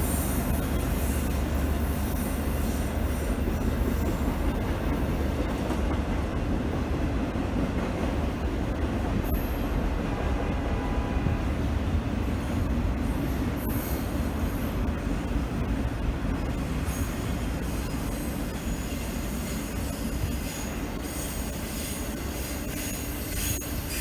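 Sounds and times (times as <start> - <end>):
train wheels rumbling on rail: 0.0 - 24.0
high-pitched wheel squeals: 16.6 - 24.0.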